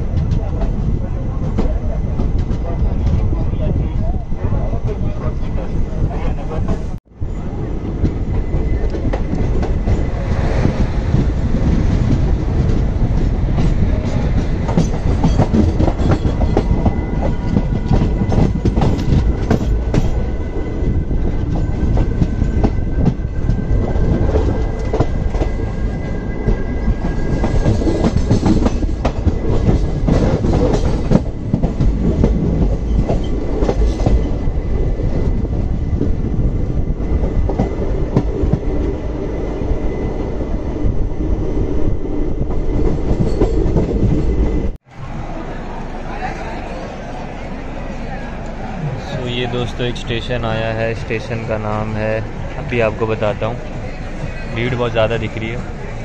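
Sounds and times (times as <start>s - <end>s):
wheels clickety-clack over rail joints: 0.0s - 7.0s, 7.7s - 39.1s, 42.3s - 44.8s
train rumble: 0.0s - 56.0s.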